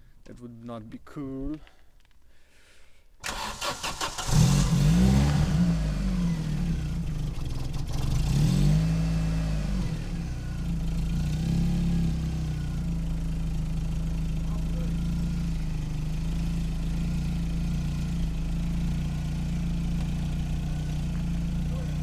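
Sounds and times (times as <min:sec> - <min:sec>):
starter motor cranking: 0:03.2 - 0:04.7
car engine revving and idling: 0:03.7 - 0:22.0.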